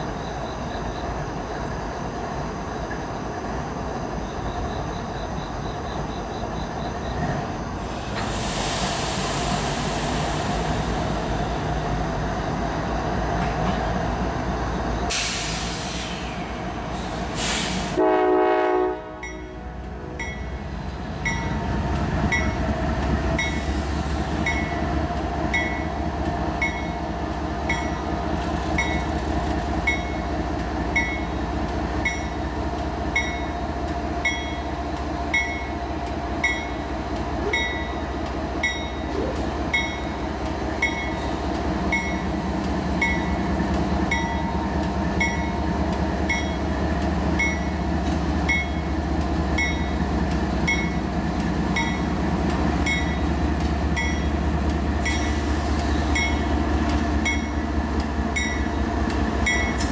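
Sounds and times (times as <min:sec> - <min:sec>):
diesel locomotives rumbling: 0:00.0 - 0:59.9
train bell ringing: 0:19.2 - 0:21.7, 0:22.3 - 0:22.6, 0:23.4 - 0:23.7, 0:24.4 - 0:24.8, 0:25.5 - 0:26.0, 0:26.6 - 0:27.0, 0:27.6 - 0:28.1, 0:28.8 - 0:29.1, 0:29.8 - 0:30.3, 0:30.9 - 0:31.4, 0:32.0 - 0:32.4, 0:33.1 - 0:33.6, 0:34.2 - 0:34.7, 0:35.3 - 0:35.8, 0:36.4 - 0:36.9, 0:37.5 - 0:39.1, 0:39.7 - 0:40.2, 0:40.8 - 0:41.3, 0:41.9 - 0:42.3, 0:43.0 - 0:43.5, 0:44.1 - 0:44.6, 0:45.2 - 0:45.6, 0:46.2 - 0:46.7, 0:47.4 - 0:47.8, 0:48.5 - 0:48.9, 0:49.6 - 0:50.0, 0:50.6 - 0:51.0, 0:51.8 - 0:52.2, 0:52.8 - 0:53.2, 0:54.0 - 0:54.4, 0:55.0 - 0:55.4, 0:56.1 - 0:56.5, 0:57.2 - 0:57.6, 0:58.3 - 0:58.8, 0:59.4 - 0:59.8.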